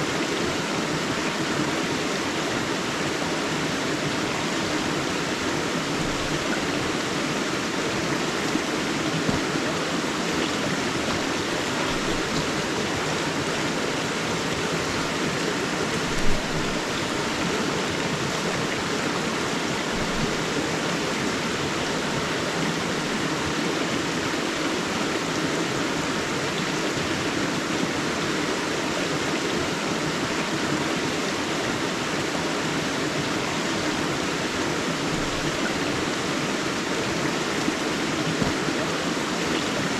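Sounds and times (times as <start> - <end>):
river rushing: 0.0 - 39.9
water splash: 8.2 - 13.4, 16.0 - 17.4.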